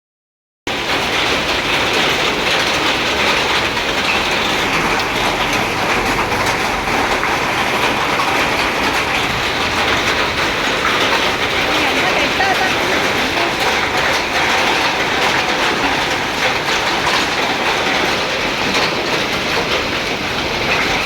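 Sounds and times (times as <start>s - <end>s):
hailstones clattering: 0.7s - 21.0s
heavy rain: 0.7s - 21.0s.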